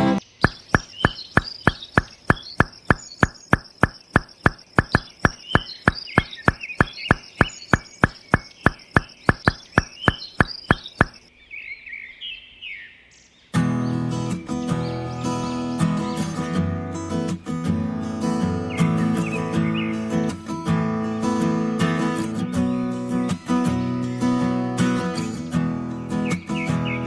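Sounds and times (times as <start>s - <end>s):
birds chirping: 0.0s - 17.6s, 18.2s - 20.4s, 25.9s - 27.0s
steady knocking with ring: 0.4s - 11.2s.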